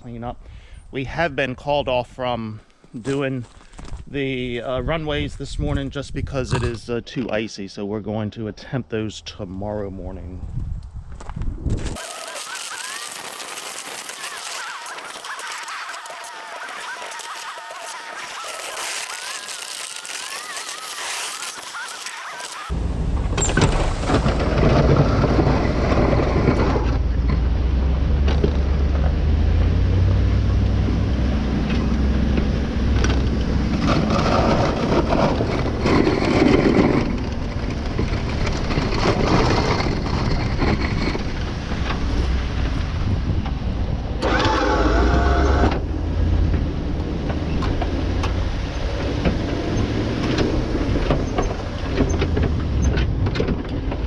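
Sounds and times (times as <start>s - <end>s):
vehicle engine rumbling: 22.7s - 44.2s.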